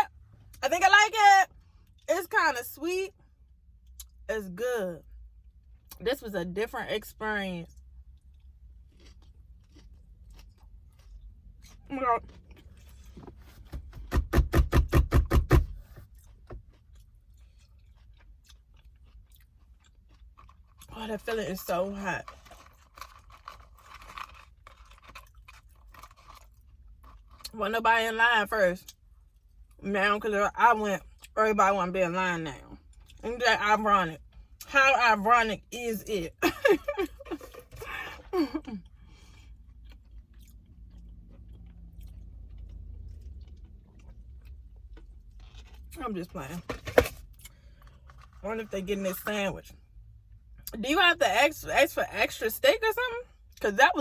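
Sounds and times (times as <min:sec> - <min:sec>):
low steady hum: 0:00.0 - 0:54.0
person chewing: 0:08.1 - 0:13.6, 0:15.8 - 0:20.9, 0:22.2 - 0:27.5, 0:37.1 - 0:45.9.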